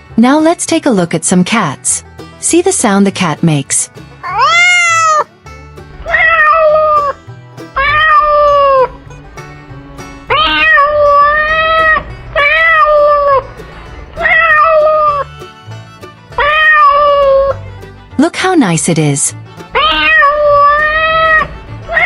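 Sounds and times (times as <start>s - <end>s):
cat meowing: 4.2s - 5.3s, 5.9s - 15.3s, 16.4s - 17.8s, 19.7s - 22.0s.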